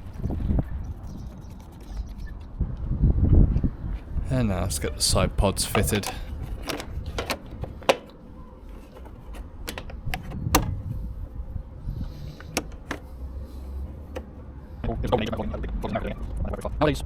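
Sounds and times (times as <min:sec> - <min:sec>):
plastic panel clips clicking: 0:05.5 - 0:08.2.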